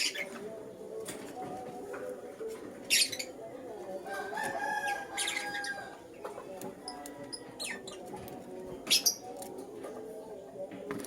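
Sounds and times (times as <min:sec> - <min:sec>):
lovebirds chirping and calling: 0:00.0 - 0:00.5, 0:02.8 - 0:09.6.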